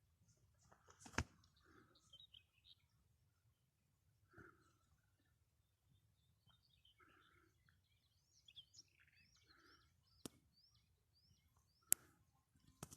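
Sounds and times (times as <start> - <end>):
faint bird chirping: 0.1 - 12.9.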